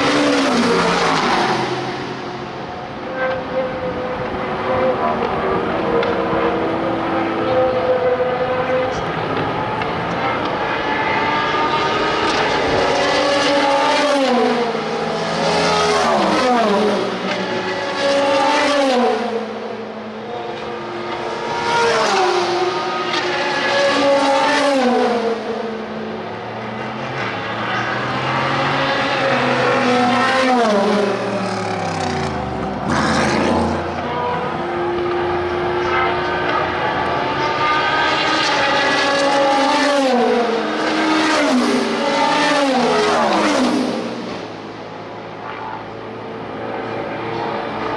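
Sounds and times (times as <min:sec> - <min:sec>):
racing car passing close: 0:00.0 - 0:47.9
racing car engines changing gear: 0:20.4 - 0:45.7.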